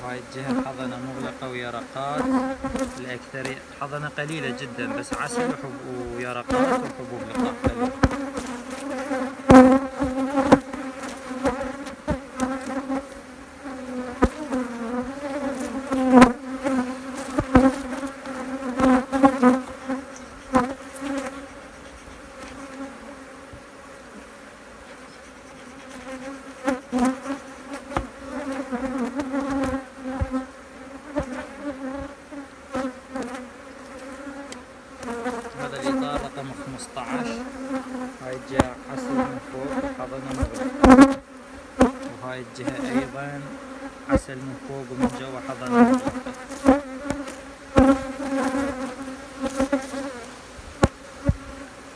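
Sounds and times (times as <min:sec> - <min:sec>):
honeybees buzzing: 0:00.0 - 0:51.9
knocks and clicks of hive frames: 0:02.2 - 0:03.7, 0:04.9 - 0:11.6, 0:26.1 - 0:30.4, 0:33.2 - 0:41.2, 0:45.0 - 0:49.8.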